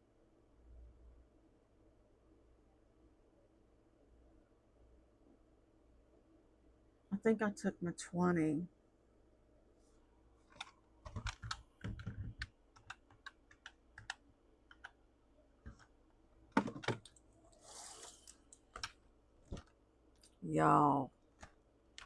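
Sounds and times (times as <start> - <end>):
hands clicking and tapping at desk: 10.5 - 15.0, 15.6 - 15.9, 18.6 - 19.8.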